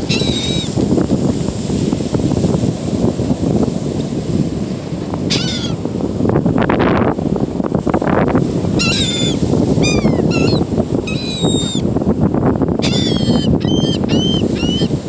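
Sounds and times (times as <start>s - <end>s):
gulls calling: 0.0s - 0.8s, 5.3s - 5.8s, 8.7s - 11.9s, 12.8s - 15.0s
surf: 0.0s - 15.0s
wind on microphone: 0.0s - 15.0s.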